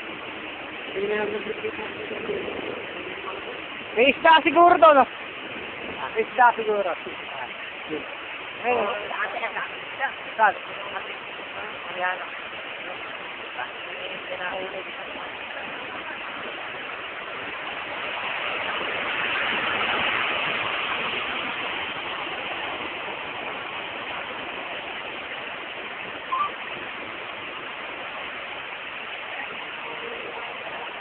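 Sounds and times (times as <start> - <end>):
rushing floodwater: 0.0 - 31.0.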